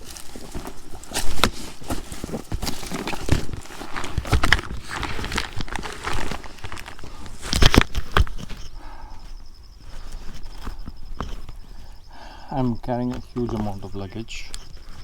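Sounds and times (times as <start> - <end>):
footsteps walking: 0.0 - 8.7.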